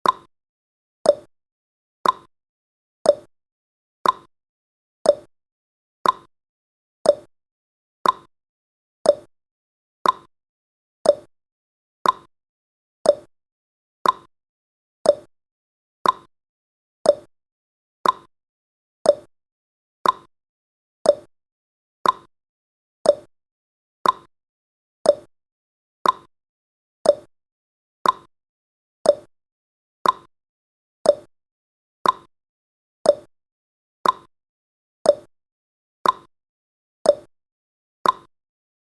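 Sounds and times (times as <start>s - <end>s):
timer ticking: 0.0s - 0.3s, 1.0s - 1.3s, 2.0s - 2.3s, 3.1s - 3.3s, 4.0s - 4.3s, 5.1s - 5.3s, 6.0s - 6.3s, 7.0s - 7.3s, 8.0s - 8.3s, 9.0s - 9.3s, 10.0s - 10.3s, 11.0s - 11.3s, 12.0s - 12.3s, 13.0s - 13.3s, 14.0s - 14.3s, 15.0s - 15.3s, 16.0s - 16.3s, 17.0s - 17.3s, 18.0s - 18.3s, 19.0s - 19.3s, 20.0s - 20.3s, 21.0s - 21.3s, 22.0s - 22.3s, 23.0s - 23.3s, 24.0s - 24.3s, 25.0s - 25.3s, 26.0s - 26.3s, 27.0s - 27.3s, 28.0s - 28.3s, 29.0s - 29.3s, 30.0s - 30.3s, 31.0s - 31.3s, 32.0s - 32.3s, 33.0s - 33.3s, 34.0s - 34.3s, 35.1s - 35.3s, 36.0s - 36.3s, 37.1s - 37.3s, 38.0s - 38.3s.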